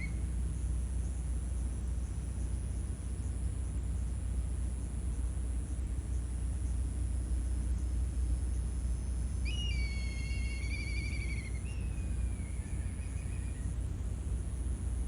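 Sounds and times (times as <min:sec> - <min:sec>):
bird whistling: 0:09.4 - 0:13.8.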